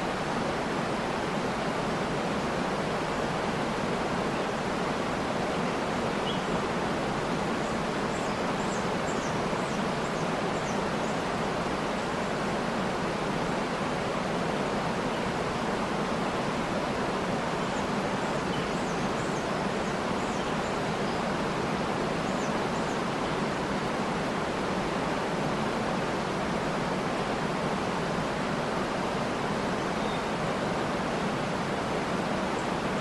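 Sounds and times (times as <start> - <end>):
waterfall rushing: 0.0 - 33.0
faint high bird chirps: 29.9 - 30.4.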